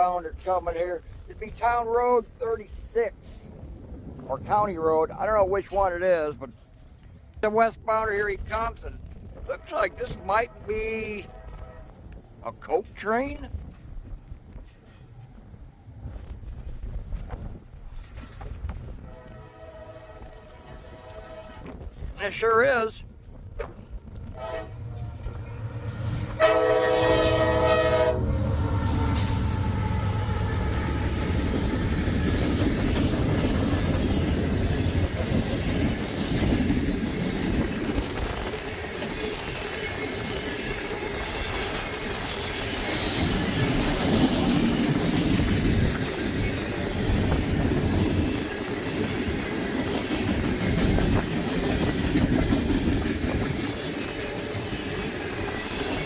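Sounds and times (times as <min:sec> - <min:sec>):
wheels clacking over rail joints: 0:17.2 - 0:19.1, 0:28.7 - 0:56.0
locomotive horn chord: 0:19.1 - 0:21.7, 0:24.4 - 0:25.2, 0:26.2 - 0:31.1.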